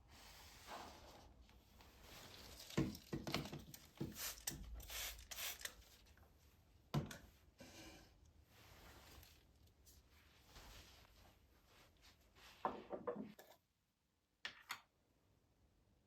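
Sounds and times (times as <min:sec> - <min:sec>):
rustles and scrapes of containers: 0:00.1 - 0:04.0.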